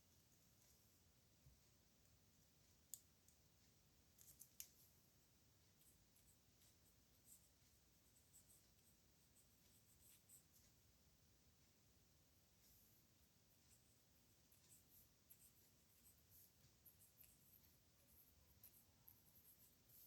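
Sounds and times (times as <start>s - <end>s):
nib pen scratching on paper: 13.6s - 20.0s.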